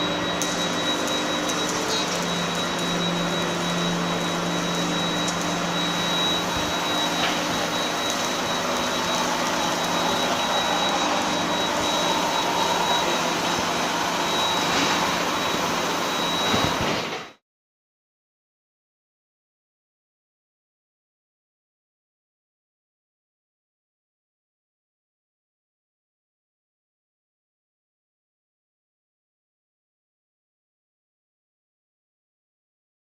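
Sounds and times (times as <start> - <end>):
thin high whine: 0.0 - 17.3
industrial machine noise: 0.0 - 17.4.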